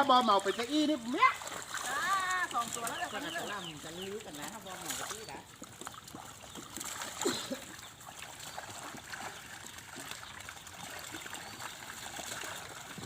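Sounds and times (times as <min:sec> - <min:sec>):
water splash: 0:00.0 - 0:13.0
water trickling and dripping: 0:00.0 - 0:13.0.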